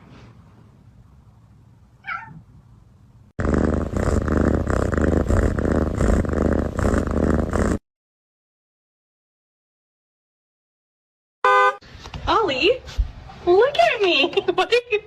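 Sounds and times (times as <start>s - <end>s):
cat meowing: 2.0s - 2.4s
rough pulsing sound: 3.4s - 7.8s.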